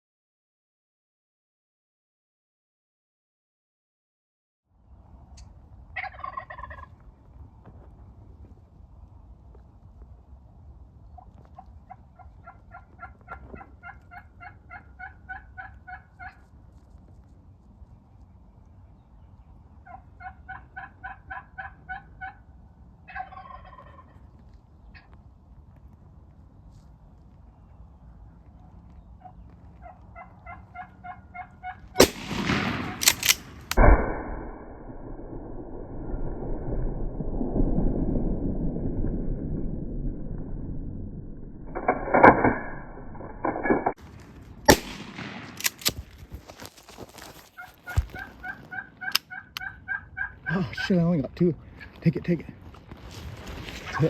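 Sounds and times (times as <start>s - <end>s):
turkey gobble: 6.0s - 6.9s, 11.2s - 16.5s, 19.8s - 22.4s, 23.1s - 24.3s, 29.2s - 32.1s, 47.6s - 50.9s
turkey yelps: 6.0s - 6.9s, 11.4s - 16.4s, 19.8s - 22.4s, 23.1s - 24.2s, 29.2s - 32.0s, 47.6s - 50.9s.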